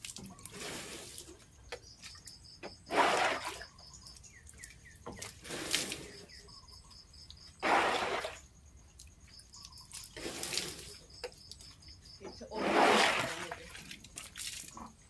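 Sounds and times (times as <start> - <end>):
water splashing: 0.0 - 1.4, 2.8 - 6.3, 7.5 - 8.5, 12.4 - 14.9.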